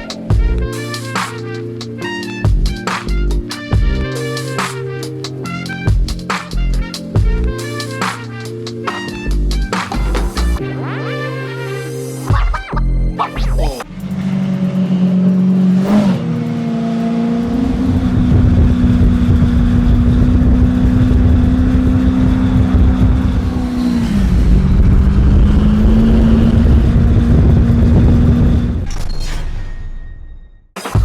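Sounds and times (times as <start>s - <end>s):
motorcycle engine revving: 13.8s - 28.8s.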